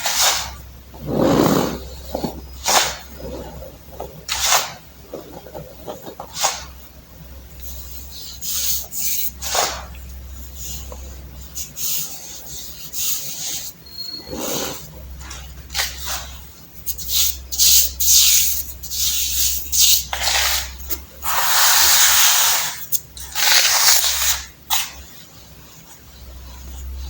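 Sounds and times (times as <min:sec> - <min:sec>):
baking soda crunching by hand: 0:16.9 - 0:25.0.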